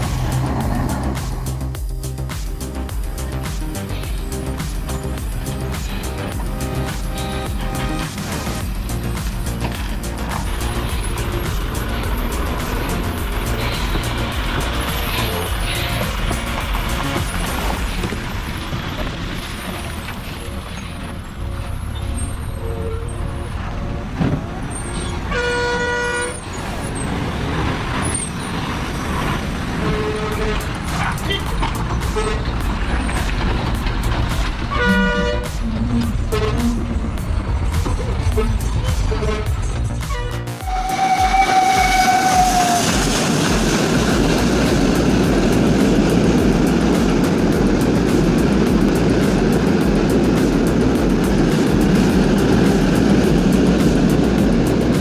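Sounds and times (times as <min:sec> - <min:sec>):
truck engine running: 0:00.0 - 0:19.4, 0:28.8 - 0:55.0
truck horn blast: 0:24.9 - 0:26.4, 0:34.7 - 0:36.9, 0:40.1 - 0:47.9.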